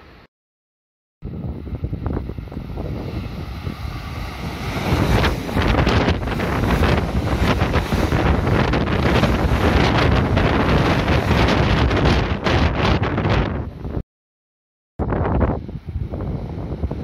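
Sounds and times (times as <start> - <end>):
wind rushing over microphone: 1.2 - 14.0, 15.0 - 17.0
electric train passing: 1.3 - 13.9.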